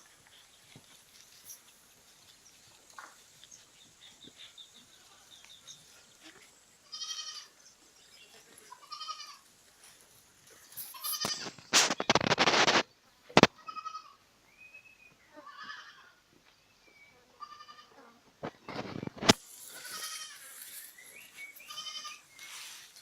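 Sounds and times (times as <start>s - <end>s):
goats bleating: 6.8s - 7.6s, 8.7s - 9.4s, 10.9s - 11.6s, 13.6s - 14.2s, 15.4s - 16.1s, 17.4s - 17.9s, 19.8s - 20.6s, 21.6s - 22.2s.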